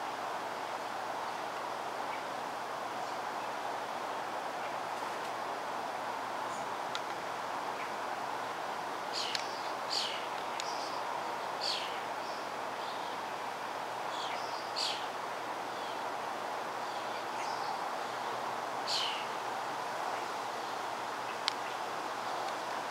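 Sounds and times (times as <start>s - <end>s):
steady background hiss: 0.0s - 22.9s
small birds chirping: 9.1s - 13.3s, 14.0s - 16.1s, 16.8s - 19.4s.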